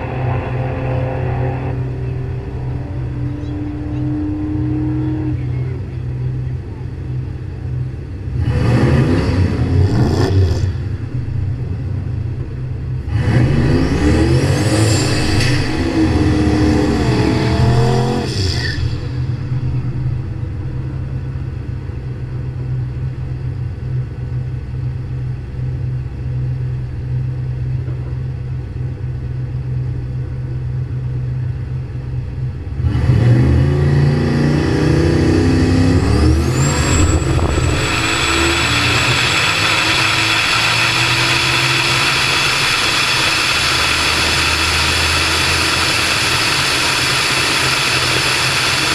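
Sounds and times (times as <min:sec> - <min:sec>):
drag car engines idling: 0:00.0 - 0:08.3, 0:37.0 - 0:48.9
engines revving loudly: 0:00.0 - 0:11.0, 0:13.0 - 0:19.4, 0:32.7 - 0:48.9.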